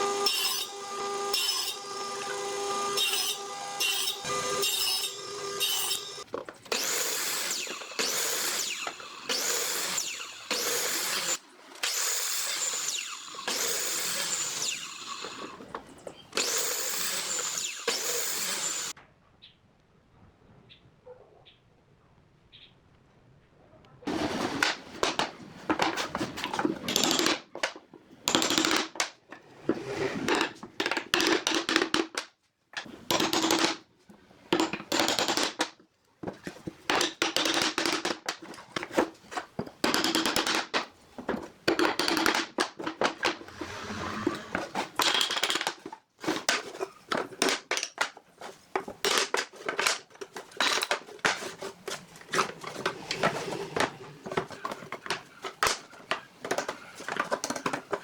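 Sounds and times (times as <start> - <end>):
short scraping on wood: 43.2 - 45.1, 48.4 - 58.0.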